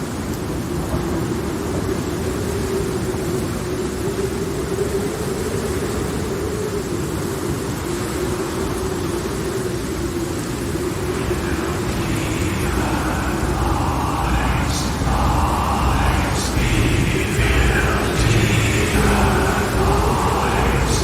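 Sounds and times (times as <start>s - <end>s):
thunderstorm rumble and hiss: 0.0s - 21.0s
faint constant hum: 10.8s - 21.0s.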